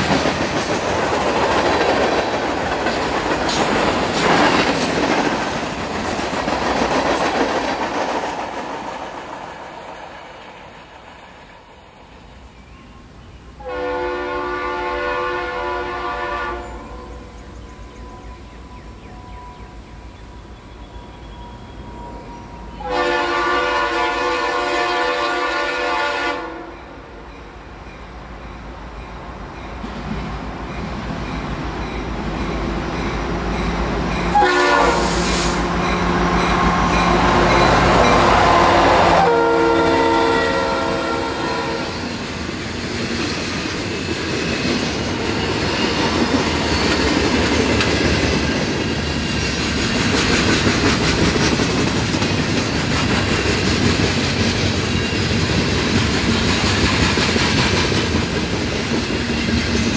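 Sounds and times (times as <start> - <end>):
train wheels clattering on rail joints: 0.0 - 11.5, 42.0 - 59.9
train air horn: 13.6 - 17.2, 22.0 - 27.0, 34.3 - 42.1
diesel locomotive engine rumble: 27.0 - 59.9.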